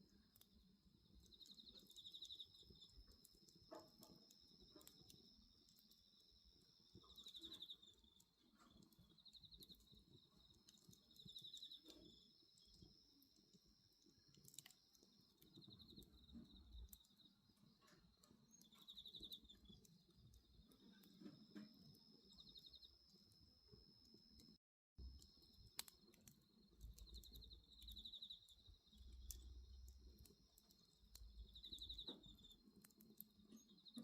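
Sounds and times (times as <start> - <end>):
bonfire crackling and popping: 0.0 - 34.0
crickets chirping: 1.0 - 24.4, 25.0 - 34.0.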